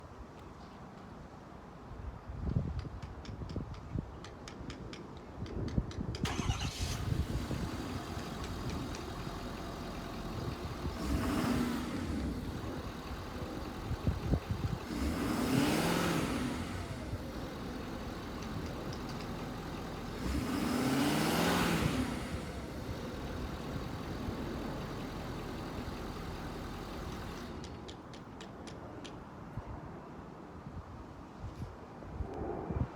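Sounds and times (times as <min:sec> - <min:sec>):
truck engine cranking and revving: 0:06.2 - 0:28.4.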